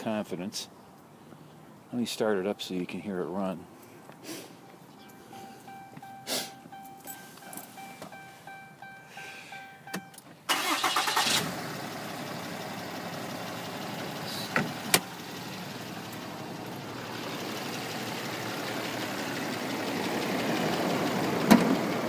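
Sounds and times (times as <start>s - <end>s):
electronic dash chime: 4.6s - 10.2s
diesel engine cranking and idling: 4.6s - 22.0s.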